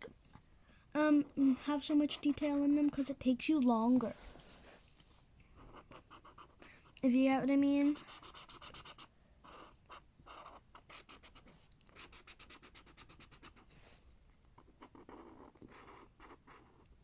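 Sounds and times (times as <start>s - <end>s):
colouring tool scratching on paper: 1.4s - 3.0s, 5.6s - 7.2s, 7.8s - 13.7s.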